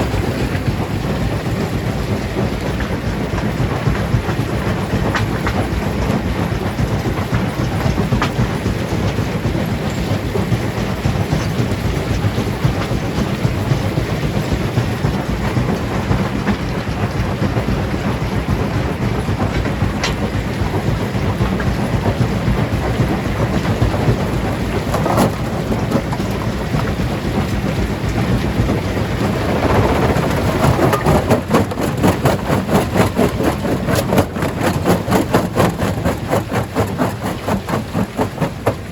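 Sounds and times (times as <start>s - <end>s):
stone crusher grinding rocks: 21.5s - 38.9s.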